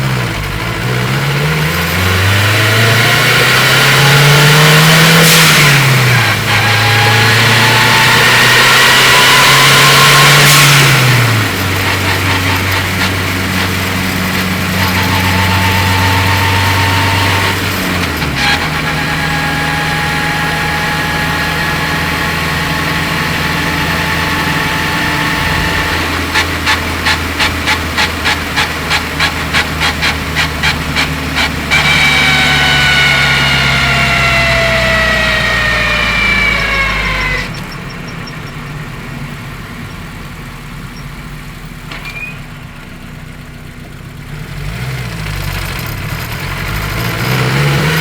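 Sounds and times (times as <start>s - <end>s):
car engine accelerating with whine: 0.0s - 48.0s
rapid ticking: 9.6s - 19.9s, 22.6s - 37.6s
hiss on gear shift: 24.4s - 37.4s.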